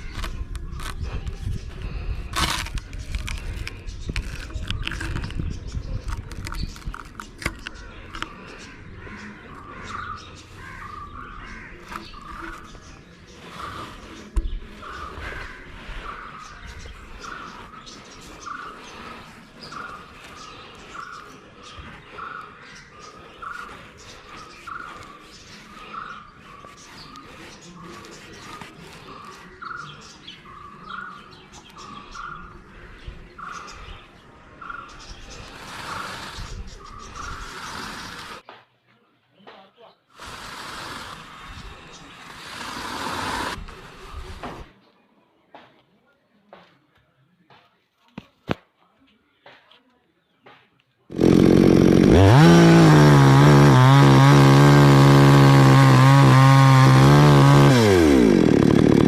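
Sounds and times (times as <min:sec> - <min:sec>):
small birds chirping: 0:00.0 - 0:59.0
crows cawing: 0:08.1 - 0:12.4.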